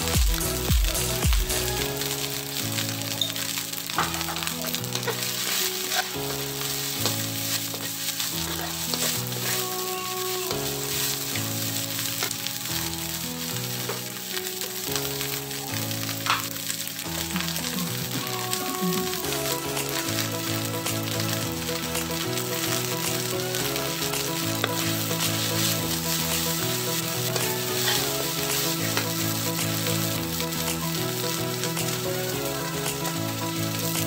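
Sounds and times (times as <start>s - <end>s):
background music: 0.0s - 34.0s
meat sizzling in a wok: 0.0s - 34.0s
metal spatula scraping a pan: 3.2s - 12.4s, 24.6s - 29.6s.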